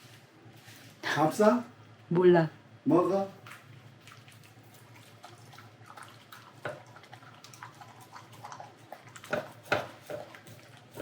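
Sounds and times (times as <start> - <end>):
dog chewing and licking: 3.4 - 11.0.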